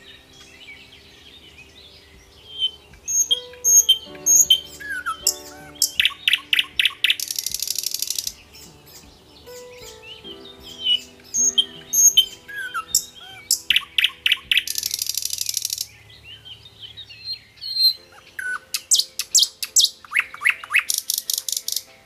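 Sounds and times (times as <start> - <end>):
low sustained tones: 0.0 - 17.1
birds chirping and whistling: 0.0 - 21.9.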